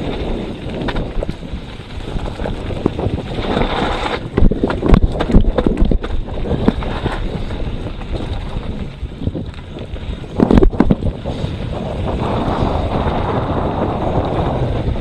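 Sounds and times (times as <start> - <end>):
bike clattering on rocks: 0.0 - 11.3
bike tyres rolling over dirt: 0.0 - 15.0
wind on microphone: 0.0 - 15.0.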